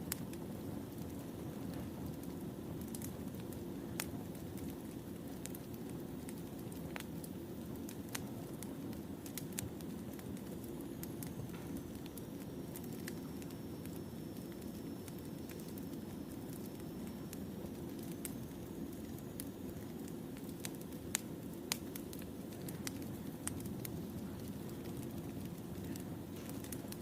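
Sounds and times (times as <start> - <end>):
wood fire rumbling: 0.0 - 27.0
firewood popping and snapping: 14.6 - 18.4, 19.0 - 27.0.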